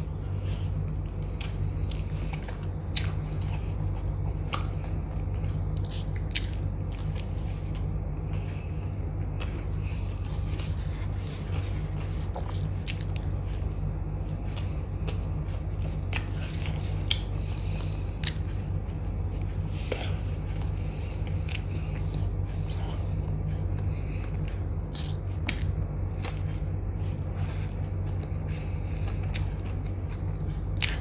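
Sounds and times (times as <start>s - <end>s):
low hum: 0.0s - 31.0s
person chewing pizza: 0.0s - 31.0s
wet mouth clicks and smacks: 24.9s - 26.4s.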